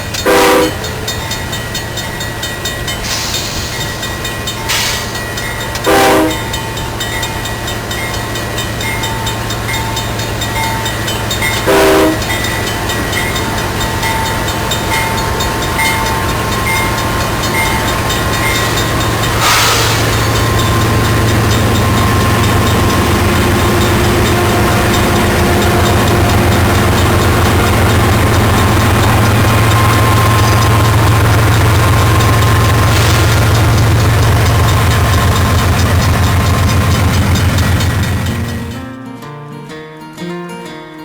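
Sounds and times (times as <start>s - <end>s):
train locomotive droning: 0.0s - 38.9s
train horn toots: 0.2s - 0.9s, 5.8s - 6.6s, 11.6s - 12.6s, 19.3s - 35.3s.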